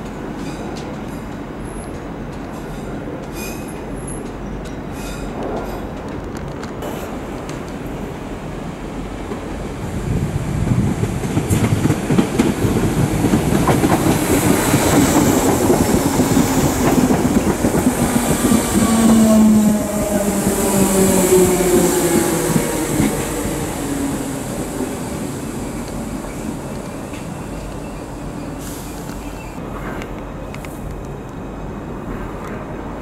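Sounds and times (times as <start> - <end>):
train wheels rumbling and clicking: 0.0 - 8.3, 9.1 - 33.0
train whine: 6.8 - 33.0.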